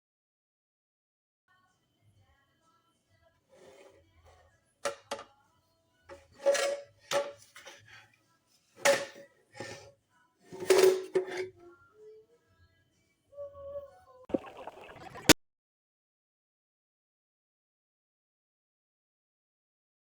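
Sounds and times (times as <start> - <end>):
kitchen items clattering: 6.2 - 8.0, 8.8 - 9.9, 10.5 - 11.5.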